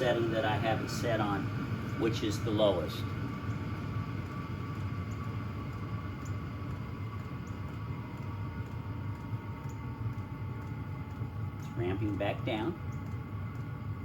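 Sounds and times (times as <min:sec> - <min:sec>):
heater blower and combustion hum: 0:00.0 - 0:14.0
faint regular ticks: 0:03.3 - 0:14.0.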